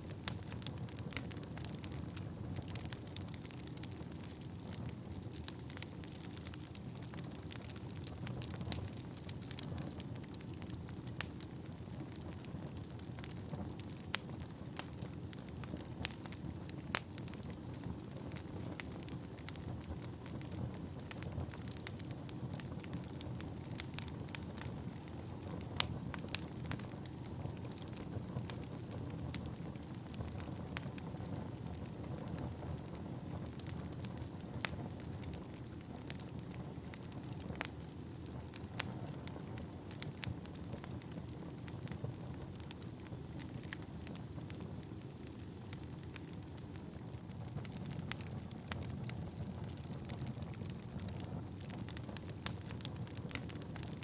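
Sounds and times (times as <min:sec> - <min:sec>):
wood fire crackling and popping: 0:00.0 - 0:54.0
faint high whistle: 0:41.7 - 0:47.1.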